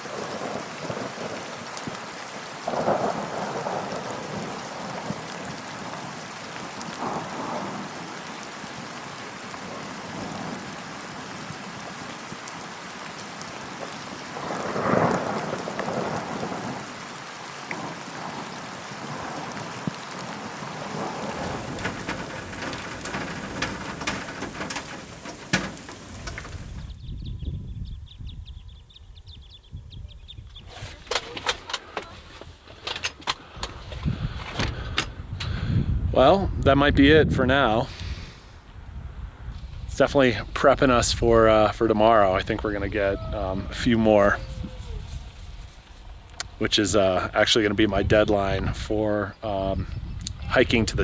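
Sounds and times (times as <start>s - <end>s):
steady rain falling: 0.0s - 27.2s, 30.6s - 51.0s
raindrops ticking close by: 0.0s - 27.4s, 37.6s - 51.0s
thunder rolling: 0.0s - 28.4s, 38.6s - 51.0s.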